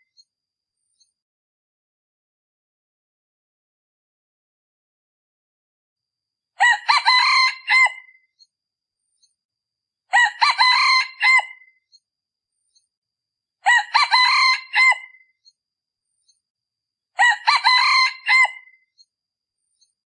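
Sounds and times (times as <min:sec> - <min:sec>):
rooster crowing: 0:06.6 - 0:08.2, 0:10.1 - 0:11.6, 0:13.6 - 0:15.2, 0:17.2 - 0:18.8.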